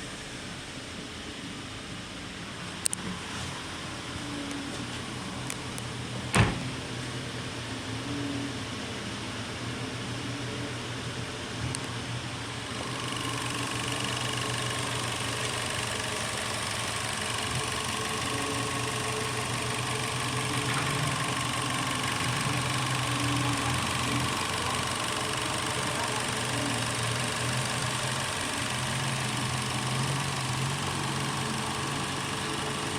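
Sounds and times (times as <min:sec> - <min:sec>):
car engine idling: 0:10.4 - 0:32.9.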